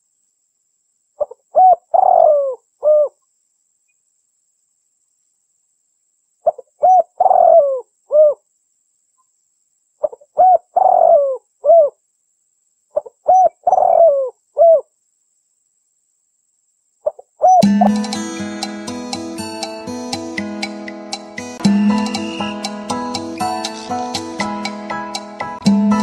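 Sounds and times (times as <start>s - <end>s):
dove cooing: 1.2s - 3.2s, 6.5s - 8.4s, 10.0s - 12.0s, 13.0s - 14.8s, 17.4s - 17.9s.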